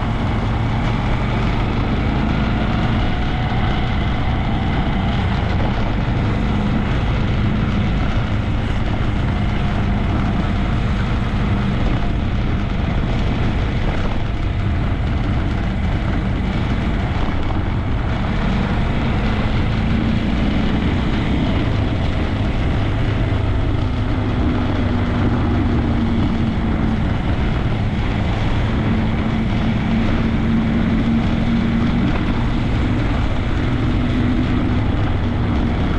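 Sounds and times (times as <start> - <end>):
motorcycle engine running: 0.0 - 35.9
wind rumble on microphone: 0.0 - 35.9.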